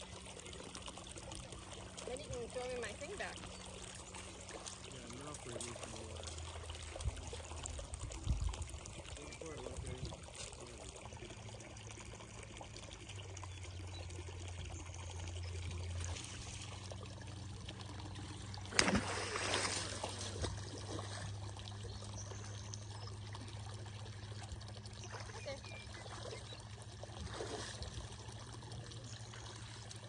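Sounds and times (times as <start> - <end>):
creek water running: 0.0 - 30.0
rustling and splashing: 1.2 - 9.2, 14.5 - 30.0.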